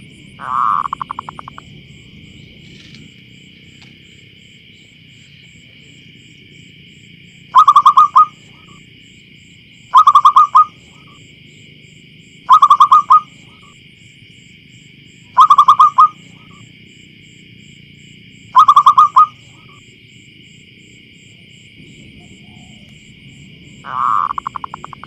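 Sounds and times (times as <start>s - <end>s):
dove cooing: 0.0s - 2.8s, 7.5s - 8.8s, 9.9s - 11.2s, 12.5s - 13.8s, 15.4s - 16.6s, 18.5s - 19.8s, 21.8s - 25.0s.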